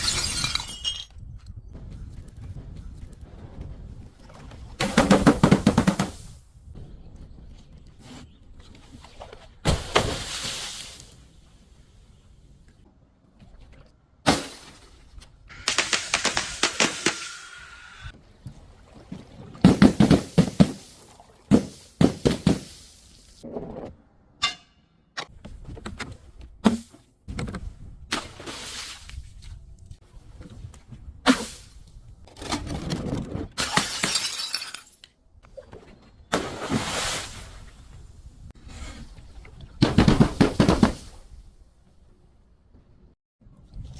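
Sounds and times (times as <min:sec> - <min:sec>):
glass shattering and crunching: 0:00.0 - 0:01.2, 0:33.6 - 0:35.0
objects crushed and breaking: 0:00.0 - 0:01.2, 0:32.3 - 0:35.0.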